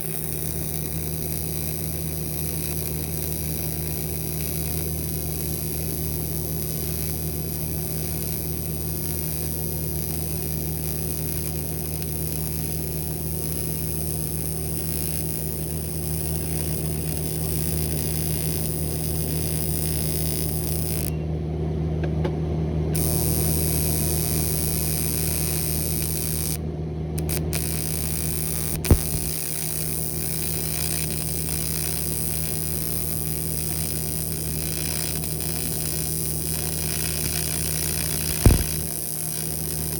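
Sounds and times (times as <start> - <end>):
welder electrical hum and hiss: 0.0 - 21.3, 22.8 - 39.9
sharp click: 28.8 - 29.3, 38.2 - 38.9.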